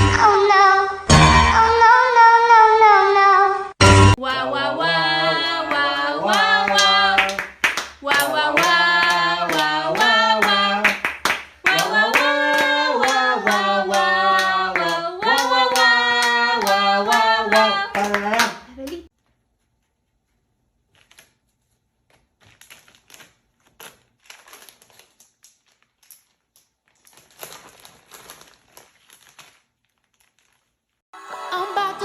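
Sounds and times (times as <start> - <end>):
person singing long notes: 4.2 - 11.0, 11.7 - 19.0
sharp claps: 5.7 - 19.0.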